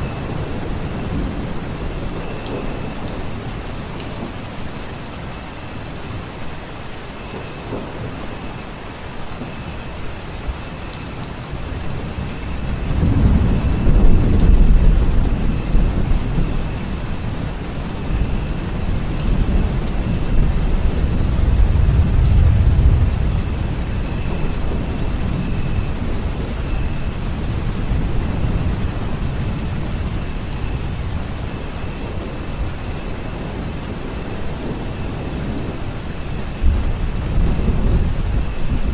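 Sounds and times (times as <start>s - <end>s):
steady rain: 0.0s - 38.9s
low thunder rumbles: 9.4s - 38.9s.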